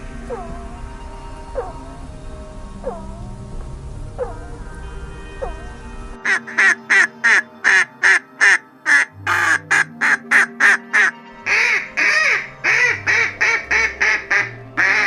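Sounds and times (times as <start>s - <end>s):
duck quacking: 6.2s - 15.0s.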